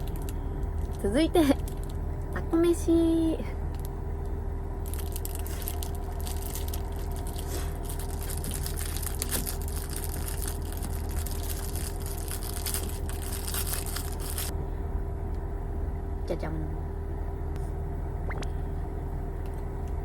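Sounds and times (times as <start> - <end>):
plastic packaging crinkling: 0.0 - 2.0, 4.8 - 14.5
steady low hum: 0.0 - 20.0.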